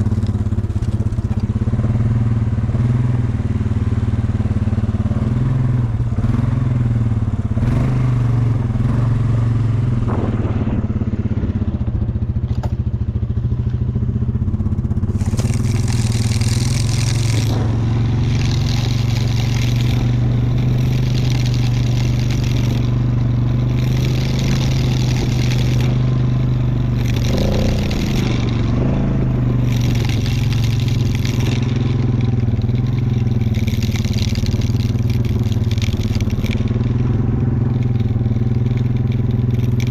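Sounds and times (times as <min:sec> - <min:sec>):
quad engine running: 0:00.0 - 0:39.9
bursts of hissing: 0:15.0 - 0:39.8.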